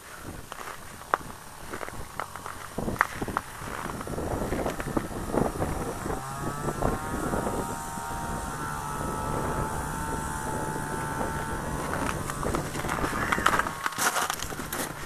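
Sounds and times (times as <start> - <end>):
small engine whine: 0.0 - 15.0.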